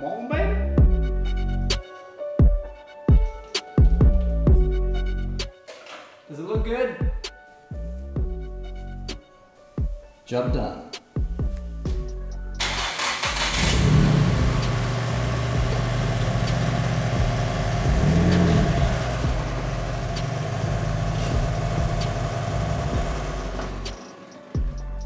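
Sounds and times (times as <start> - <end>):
car engine revving: 12.6 - 24.6
car engine starting: 12.6 - 25.0.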